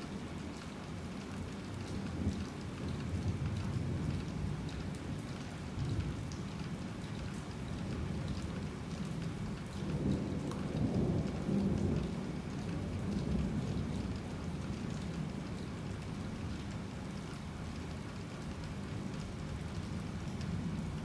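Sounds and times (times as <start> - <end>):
heavy rain falling: 6.2 - 21.0.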